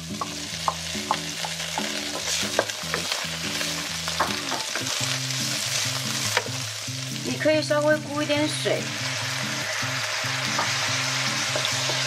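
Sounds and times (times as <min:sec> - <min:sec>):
tofu sizzling in hot oil: 0:00.0 - 0:12.0
wooden spatula knocking on pan: 0:00.1 - 0:03.1, 0:04.2 - 0:04.9.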